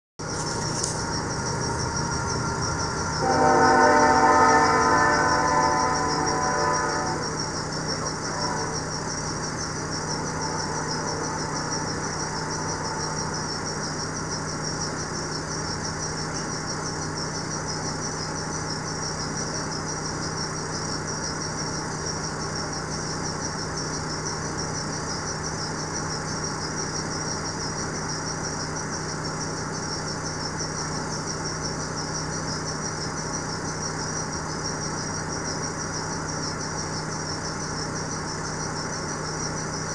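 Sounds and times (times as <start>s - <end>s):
freight train rumbling past: 0.2s - 19.7s
constant low hum: 0.2s - 39.9s.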